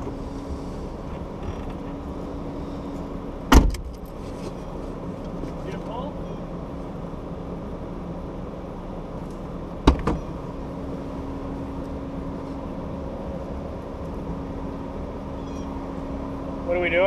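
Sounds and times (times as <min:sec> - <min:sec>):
engine idling: 0:00.0 - 0:17.0
vehicle door slamming: 0:03.5 - 0:04.0, 0:09.8 - 0:10.4.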